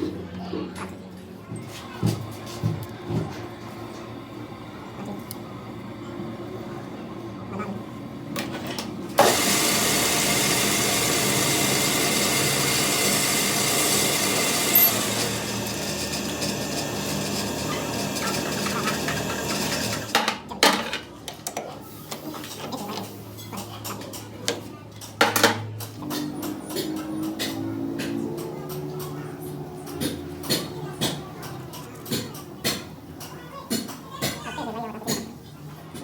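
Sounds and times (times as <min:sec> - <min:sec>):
power tool running: 0:02.0 - 0:20.2.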